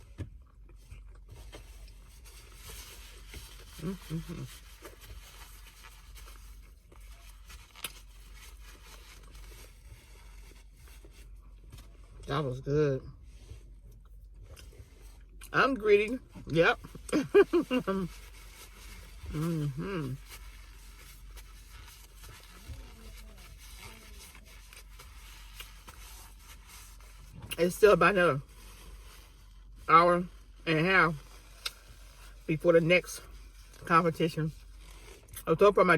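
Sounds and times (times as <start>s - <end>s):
low steady hum: 0.0s - 35.9s
person chewing: 0.4s - 9.6s, 13.9s - 15.5s.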